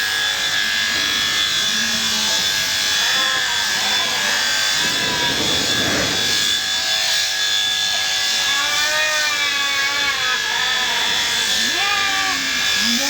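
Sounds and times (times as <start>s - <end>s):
electric shears whining: 0.0s - 13.0s
sheep bleating: 1.6s - 4.8s, 8.4s - 13.0s.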